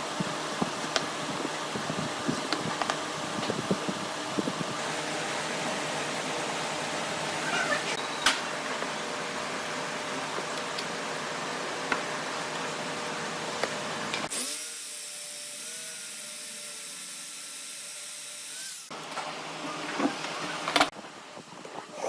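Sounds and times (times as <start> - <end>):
workshop noise: 13.5 - 21.1
power tool motor whining: 14.3 - 18.9.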